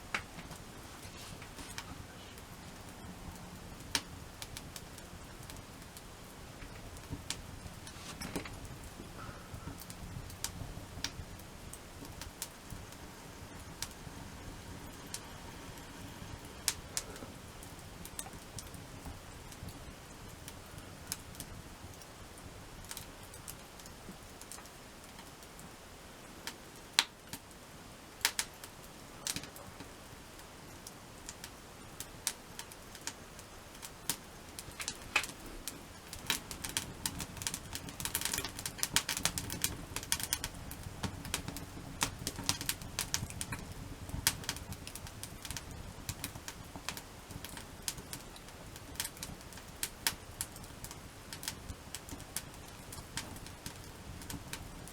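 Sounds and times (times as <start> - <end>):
campfire crackling and popping: 0.0 - 54.9.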